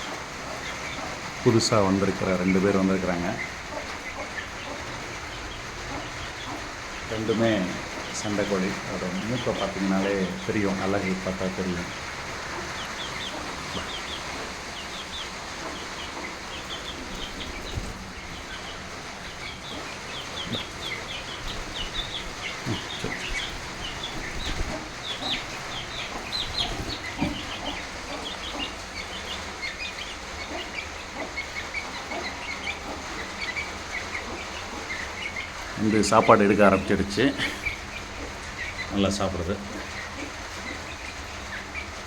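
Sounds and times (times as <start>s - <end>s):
chickens clucking: 0.0s - 42.0s
chicks chirping: 0.0s - 42.0s
dull thumps: 15.7s - 28.9s.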